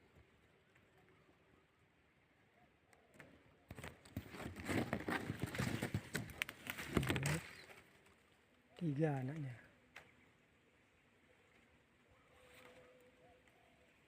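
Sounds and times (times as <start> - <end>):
leaves and twigs rustling: 3.1 - 10.2, 11.2 - 14.0.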